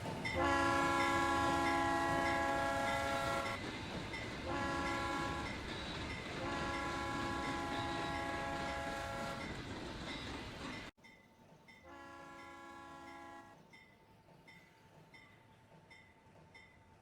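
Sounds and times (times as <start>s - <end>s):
low rumble of train: 0.0s - 17.0s
steam locomotive whistle blasts: 0.4s - 3.6s, 4.4s - 5.6s, 6.4s - 9.5s, 11.8s - 13.6s.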